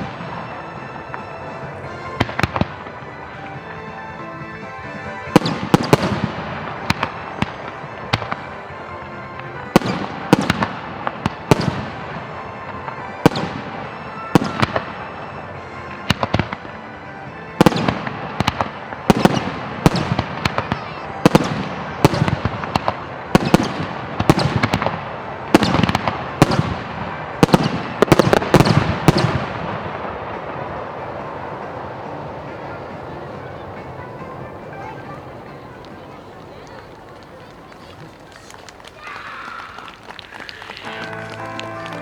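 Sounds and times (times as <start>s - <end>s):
background music: 0.0s - 38.2s, 39.1s - 42.0s
fireworks bursting: 0.0s - 42.0s.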